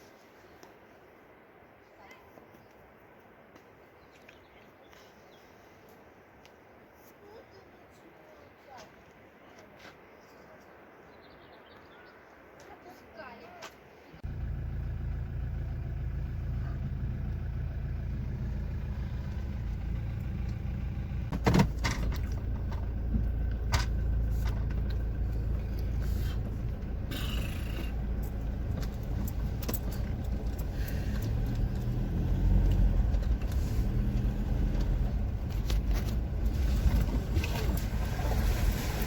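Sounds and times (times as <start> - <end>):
car engine and road rumble: 14.2 - 39.0
knocks and rattles: 20.4 - 25.7, 27.9 - 32.0.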